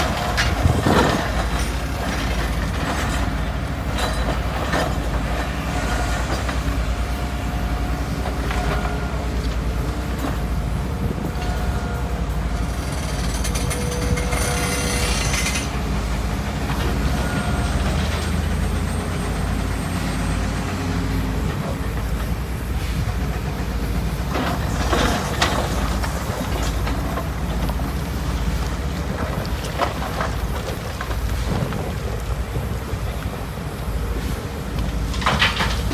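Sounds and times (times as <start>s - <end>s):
diesel engines rumbling: 0.0s - 35.9s
metal squealing: 11.5s - 15.9s
metal clanks: 12.6s - 15.8s.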